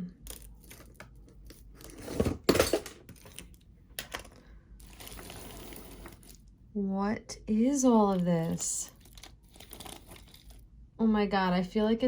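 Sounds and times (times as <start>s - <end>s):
jewelry and beads rustling: 0.2s - 6.5s, 7.8s - 10.6s.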